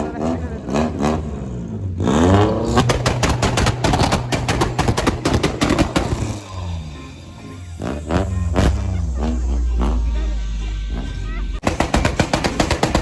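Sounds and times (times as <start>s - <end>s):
car engine revving: 0.0s - 13.0s
exhaust pops and crackles: 2.4s - 6.6s.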